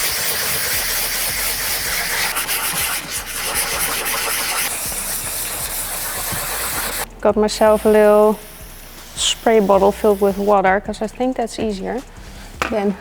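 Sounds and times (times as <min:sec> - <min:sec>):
sandpaper scratching plastic: 0:00.0 - 0:07.1.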